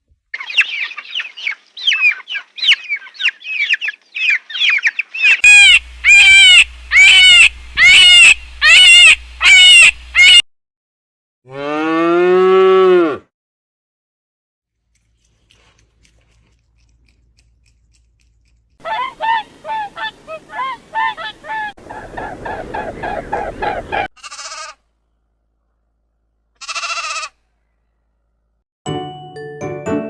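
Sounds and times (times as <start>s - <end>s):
chorus of fowl calls: 5.4s - 10.4s, 18.8s - 24.1s
fowl calling: 5.4s - 10.4s, 18.8s - 24.1s.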